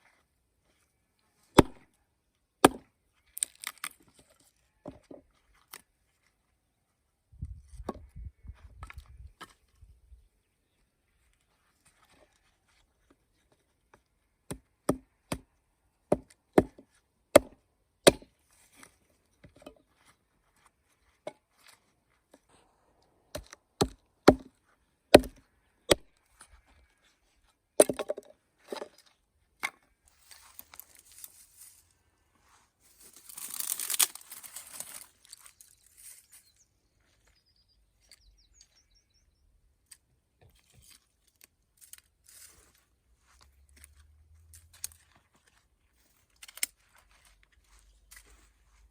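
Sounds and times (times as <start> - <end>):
axe chopping wood: 1.6 - 1.8, 2.6 - 2.9, 16.1 - 18.3, 23.3 - 24.5, 25.1 - 26.1, 27.8 - 28.2
scraping and rustling: 30.1 - 36.4.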